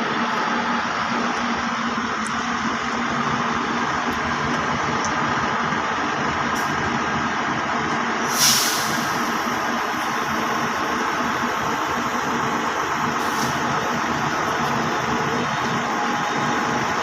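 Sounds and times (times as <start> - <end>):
heavy truck engine running: 0.0 - 17.0
air brakes hissing: 8.2 - 10.7, 13.2 - 13.8.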